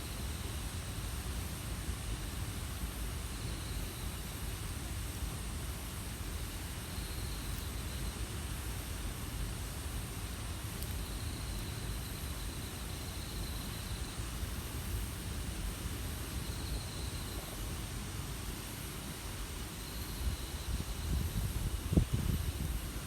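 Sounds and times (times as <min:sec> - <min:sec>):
outdoor hiss: 0:00.0 - 0:23.0
pulsing insect trill: 0:10.3 - 0:17.9, 0:19.6 - 0:23.0.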